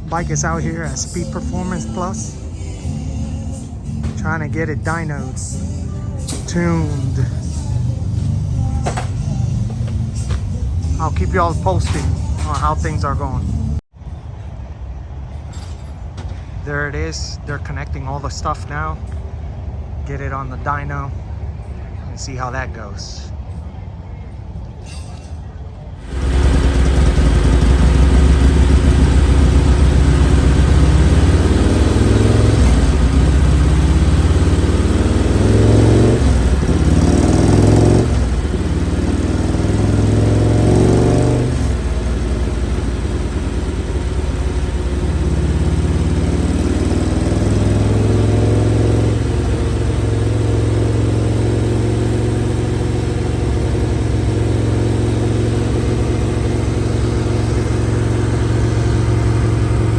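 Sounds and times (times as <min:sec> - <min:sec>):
motorcycle engine revving: 0:00.0 - 0:13.8, 0:26.0 - 0:59.9.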